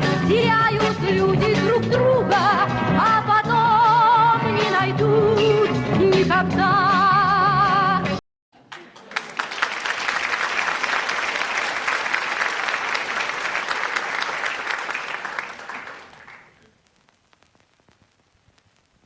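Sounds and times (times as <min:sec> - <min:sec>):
audience applauding: 0:08.6 - 0:16.7.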